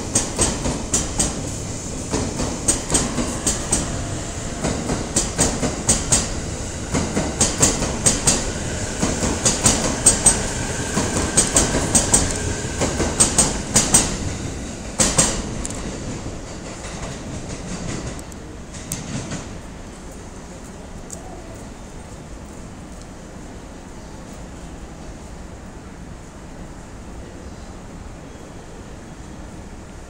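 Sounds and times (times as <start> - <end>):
train wheels clacking over rail joint: 0.0 - 14.4, 15.0 - 19.6
train rolling rumble: 0.0 - 30.0.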